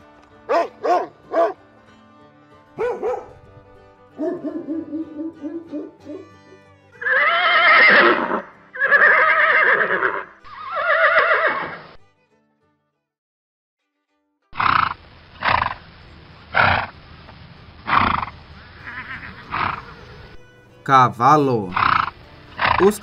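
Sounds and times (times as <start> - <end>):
horse whinnying: 7.0 - 11.9, 17.9 - 20.1
horse snorting: 14.6 - 15.8, 16.5 - 17.0, 17.8 - 20.4, 21.7 - 23.0.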